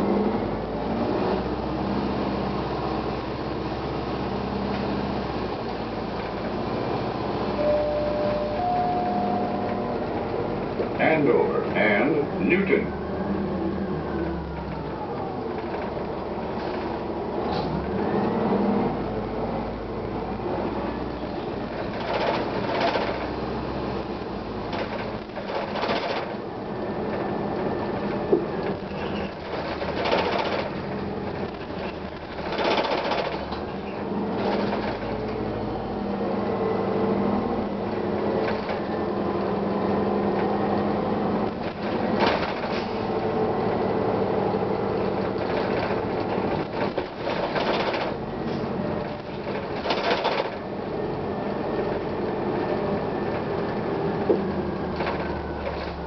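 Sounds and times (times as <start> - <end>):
bus engine running: 0.0 - 56.0.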